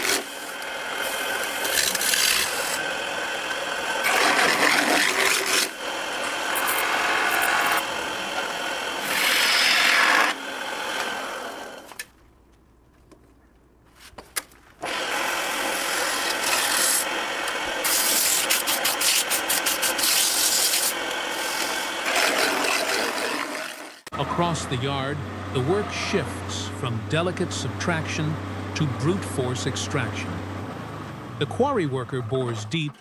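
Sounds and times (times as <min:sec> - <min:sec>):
hand tool scraping hard surface: 0:17.8 - 0:23.9.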